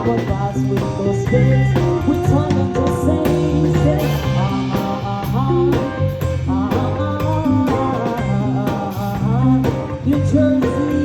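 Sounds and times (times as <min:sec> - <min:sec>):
bass line: 0:00.0 - 0:11.0
drum kit hits: 0:00.0 - 0:11.0
live band playing: 0:00.0 - 0:11.0.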